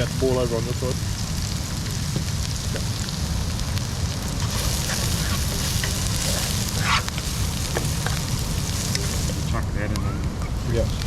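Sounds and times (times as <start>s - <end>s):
food sizzling in a pan: 0.0s - 9.6s, 10.5s - 11.0s
wind rumbling on microphone: 0.0s - 11.0s
utensil scraping: 4.4s - 9.5s.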